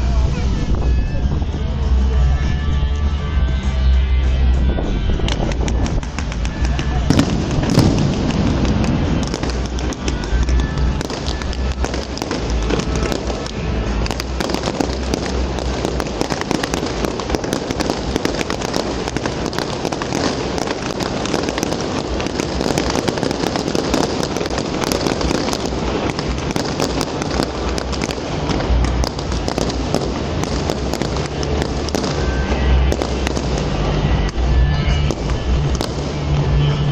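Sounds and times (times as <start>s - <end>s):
fireworks crackling: 0.0s - 36.9s
deep firework booms: 5.2s - 36.9s.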